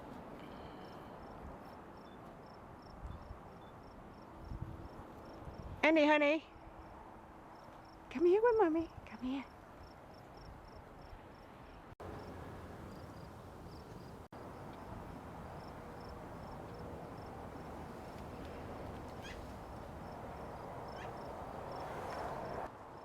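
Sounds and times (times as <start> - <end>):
insect chirping in pulses: 12.9 - 17.8, 19.2 - 22.6.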